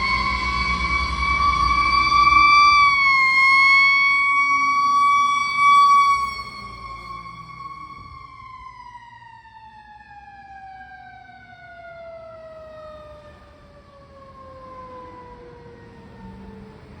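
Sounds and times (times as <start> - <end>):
mechanical siren winding down: 0.0 - 10.8.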